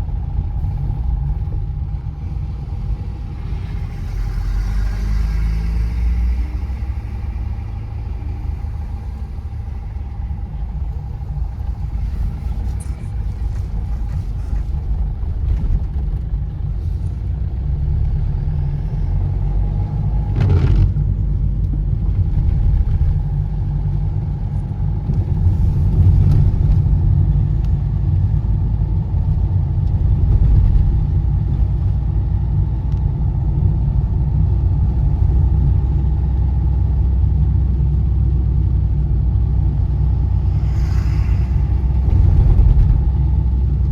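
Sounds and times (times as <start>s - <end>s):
car engine rumble: 0.0s - 43.9s
car passing sweep: 1.8s - 14.5s, 39.8s - 43.9s.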